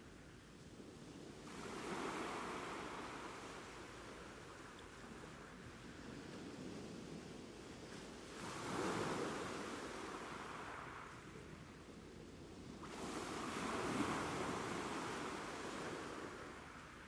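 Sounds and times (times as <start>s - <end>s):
ocean waves breaking on shore: 1.5s - 5.7s, 8.2s - 11.6s, 12.8s - 17.0s.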